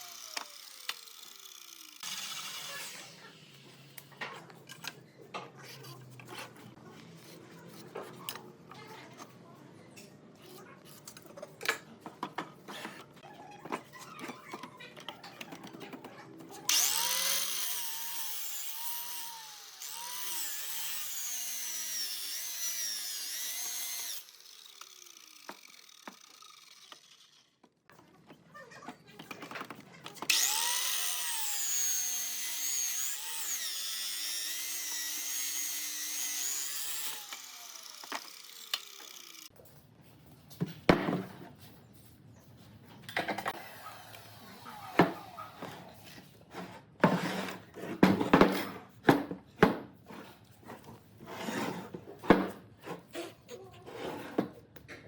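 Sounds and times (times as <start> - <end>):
power tool cutting wood: 0.0 - 4.1, 16.7 - 27.6, 30.3 - 39.5.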